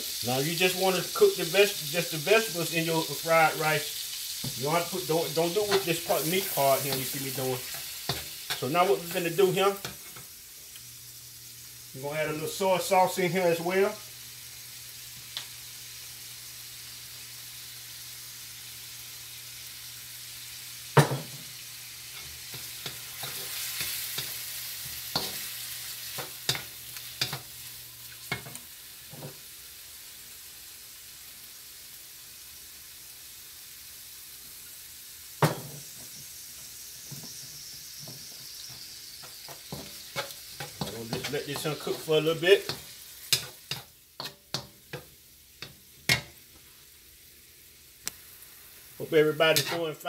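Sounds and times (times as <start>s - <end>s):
chicken sizzling in a wok: 0.0s - 50.0s
spatula scraping a wok: 4.2s - 8.7s, 22.0s - 29.4s, 37.0s - 46.8s, 49.5s - 50.0s.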